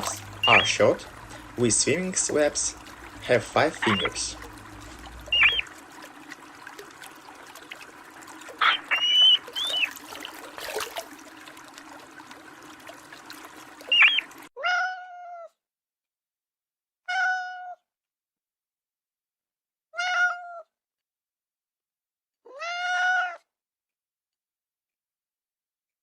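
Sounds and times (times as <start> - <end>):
watery background: 0.0 - 14.5
short high squeaks: 8.6 - 9.9
cat meowing: 14.6 - 15.5, 17.1 - 17.8, 20.0 - 20.7, 22.5 - 23.4.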